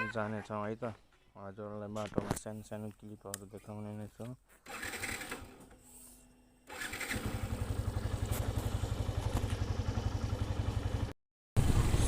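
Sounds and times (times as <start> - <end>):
motorcycle engine starting and idling: 4.6 - 5.9, 6.6 - 12.0.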